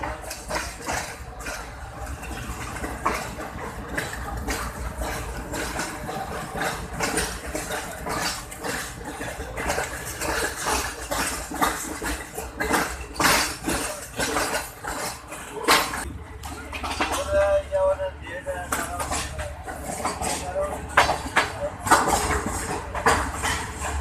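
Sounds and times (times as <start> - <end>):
train rolling rumble: 0.0 - 24.0
train wheels clanking on track: 0.0 - 24.0.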